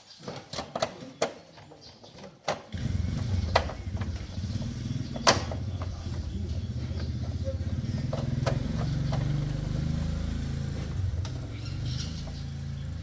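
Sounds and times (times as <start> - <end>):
sharp clicks and knocks: 0.2 - 6.4, 7.0 - 10.0
motorcycle engine idling: 2.7 - 13.0.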